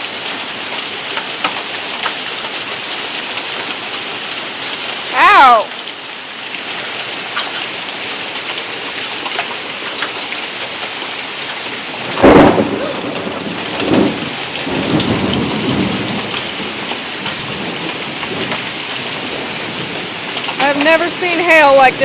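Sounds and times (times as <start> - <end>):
hail and rain pelting down: 0.0 - 22.0
deep thunder bursts: 12.0 - 22.0
low thunder rumble: 12.0 - 22.0.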